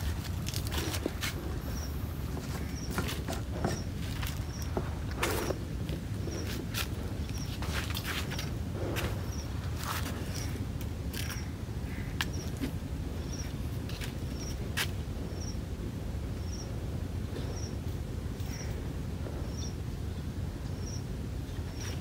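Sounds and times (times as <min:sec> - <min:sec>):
low background rumble: 0:00.0 - 0:22.0
small bird chirping: 0:19.4 - 0:19.8.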